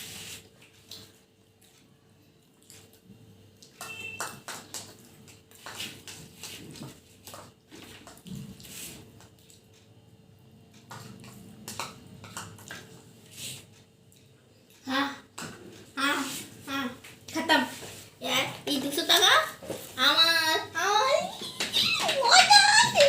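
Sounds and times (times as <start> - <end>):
person eating by hand: 0.4 - 3.8, 4.9 - 14.8.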